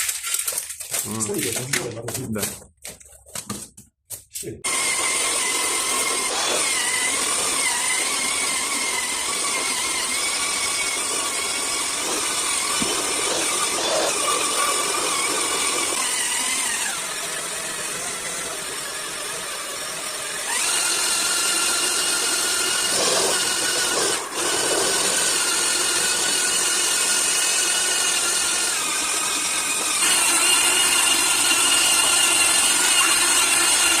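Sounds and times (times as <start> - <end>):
electric wall sander running: 4.6 - 34.0.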